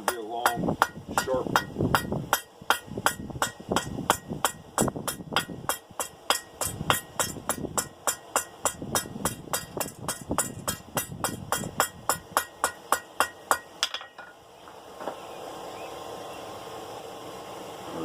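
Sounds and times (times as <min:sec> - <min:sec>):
hammer striking steel on anvil: 0:00.0 - 0:14.4.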